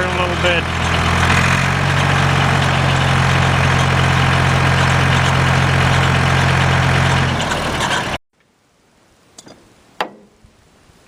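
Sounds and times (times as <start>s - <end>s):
sawmill engine humming: 0.0s - 8.2s.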